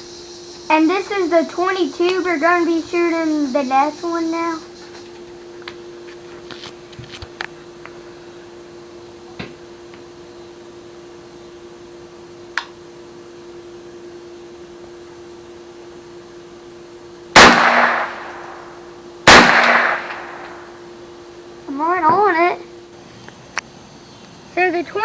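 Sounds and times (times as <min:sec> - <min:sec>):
rifle shots with echo: 0:17.4 - 0:20.8.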